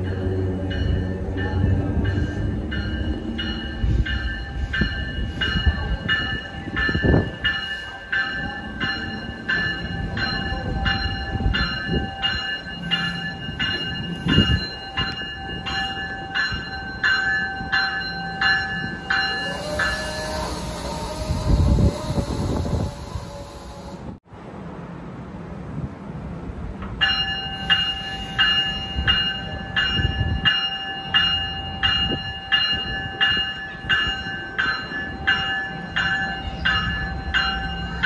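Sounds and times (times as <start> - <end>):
train warning bell ringing: 0.0 - 24.2, 27.0 - 38.0
train wheels rumbling on rails: 0.0 - 24.2.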